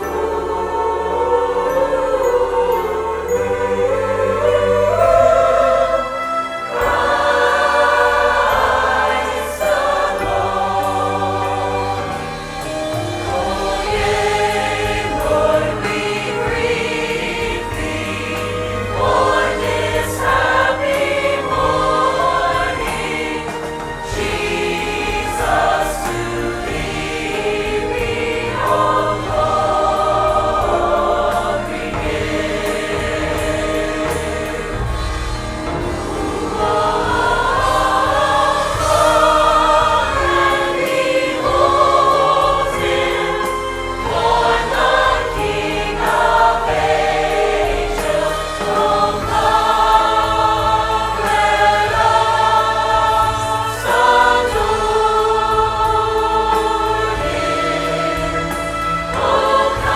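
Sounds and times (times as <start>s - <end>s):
choir singing: 0.0s - 59.9s
instrumental backing: 0.0s - 59.9s.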